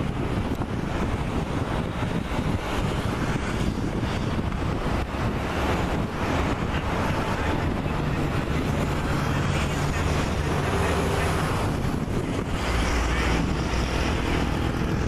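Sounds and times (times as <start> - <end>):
jet engines running: 0.0 - 15.0
wind buffeting microphone: 0.0 - 15.0.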